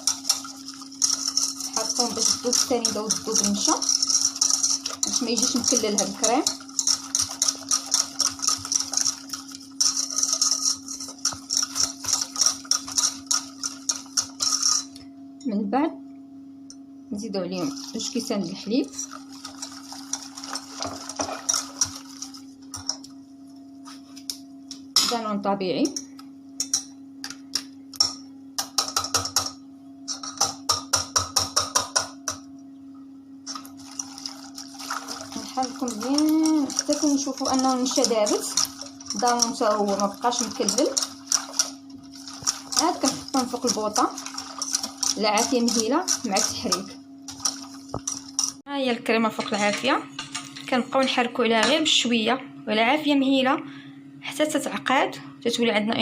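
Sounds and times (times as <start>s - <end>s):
utensil scraping in a bowl: 0.0s - 15.0s, 17.6s - 23.1s, 33.5s - 48.6s.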